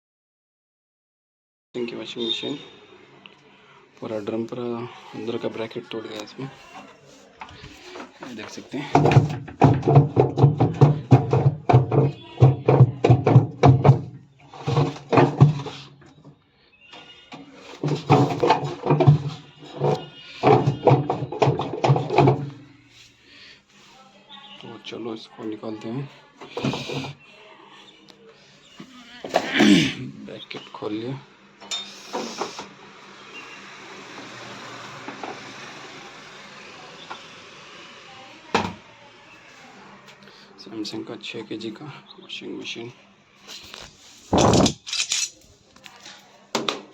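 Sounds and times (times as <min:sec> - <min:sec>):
washing machine drum knocking: 0:09.0 - 0:14.2.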